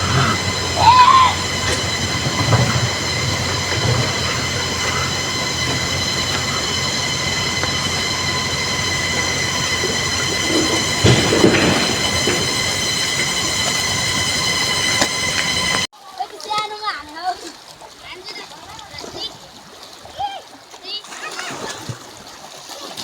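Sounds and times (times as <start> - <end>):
river water rushing: 0.0 - 15.9
thin high whine: 0.0 - 15.9.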